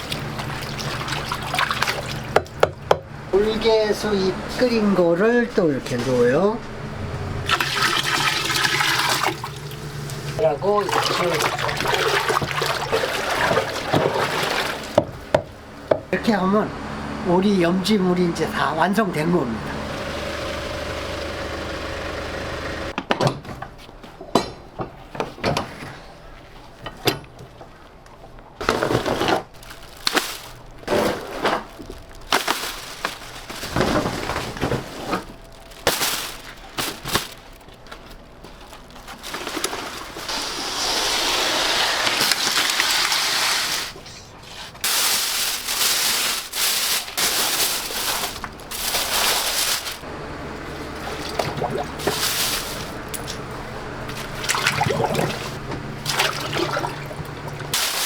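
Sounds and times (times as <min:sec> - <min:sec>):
utensils and containers clattering: 0:00.0 - 0:02.8, 0:07.5 - 0:15.4, 0:28.6 - 0:44.1, 0:44.7 - 0:50.1, 0:50.7 - 0:58.0.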